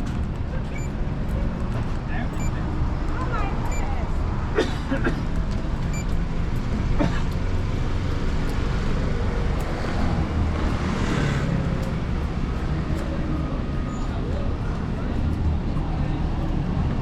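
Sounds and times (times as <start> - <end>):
street traffic rumble: 0.0 - 17.0
loud vehicle passing: 5.2 - 17.0.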